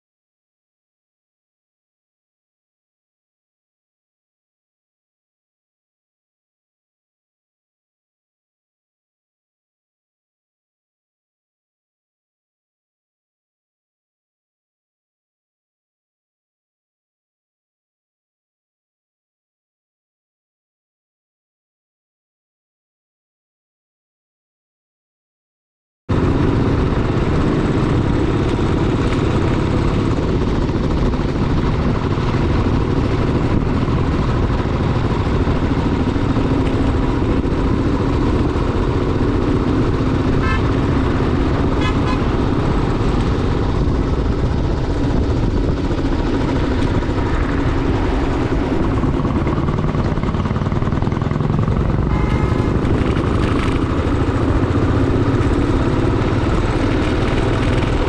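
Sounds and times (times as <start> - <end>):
motorcycle engine running: 26.1 - 58.0
wind rushing over microphone: 26.1 - 58.0
horn toot: 40.3 - 41.1, 41.7 - 42.6, 52.0 - 53.4.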